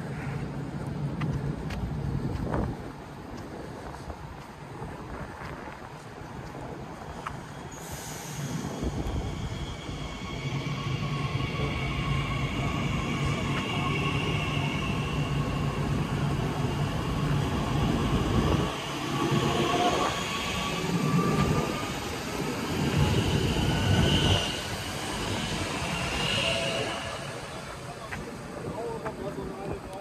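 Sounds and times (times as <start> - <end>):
train rumbling on rails: 0.0 - 30.0
faint high whines: 7.5 - 28.1.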